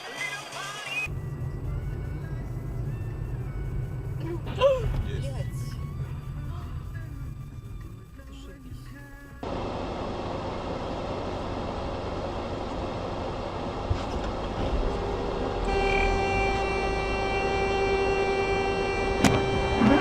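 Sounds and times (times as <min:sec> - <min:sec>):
road noise: 0:01.0 - 0:20.0
vehicle rumble: 0:01.0 - 0:20.0
long horn blast: 0:15.5 - 0:20.0.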